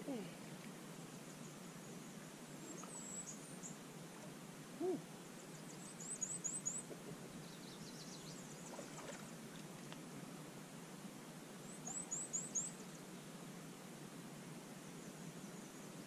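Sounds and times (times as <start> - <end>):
faint high bird calls: 1.2 - 4.2, 4.8 - 9.2, 11.6 - 13.0.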